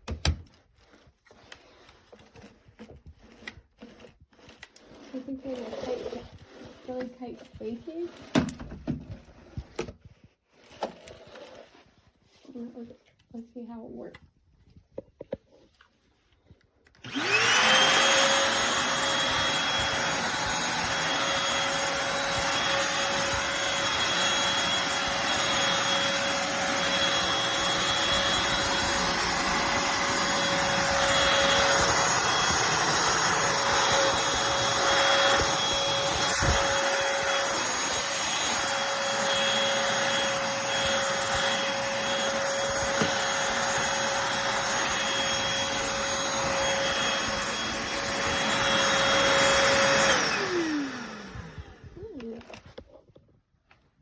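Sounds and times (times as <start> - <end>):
stick vacuum motor whining: 0.0 - 11.8, 16.8 - 52.9.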